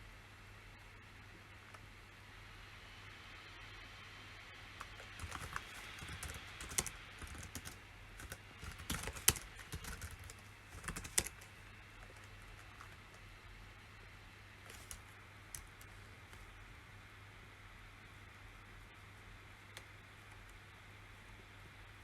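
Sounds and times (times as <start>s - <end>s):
typing on a computer keyboard: 4.8s - 13.2s, 14.7s - 15.9s.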